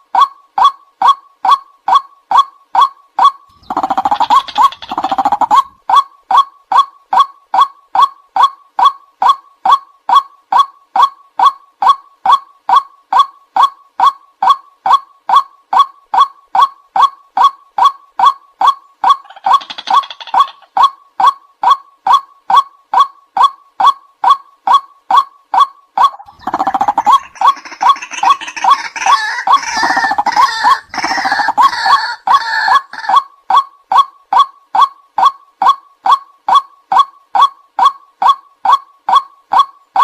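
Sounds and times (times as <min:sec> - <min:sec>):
bird repeated monotonous call: 0:00.0 - 0:40.0
harsh croaking calls: 0:00.2 - 0:08.5, 0:15.3 - 0:20.9, 0:21.6 - 0:40.0.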